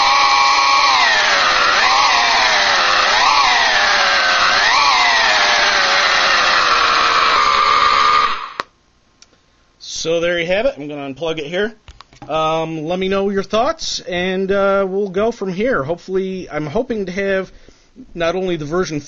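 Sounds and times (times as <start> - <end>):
high-pitched race car engine: 0.0 - 8.6.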